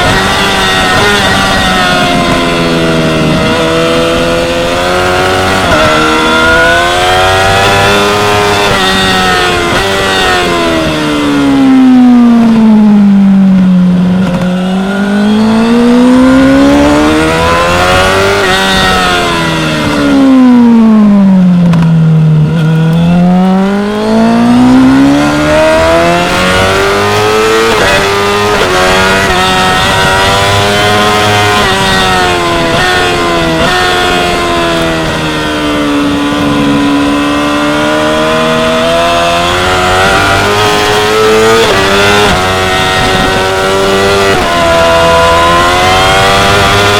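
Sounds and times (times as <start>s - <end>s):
motorcycle engine at high revs: 0.0s - 46.9s.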